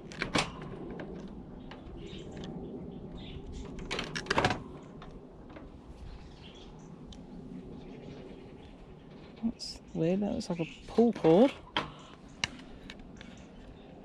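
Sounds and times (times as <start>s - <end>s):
heater parts knocking and clattering: 0.0s - 2.6s.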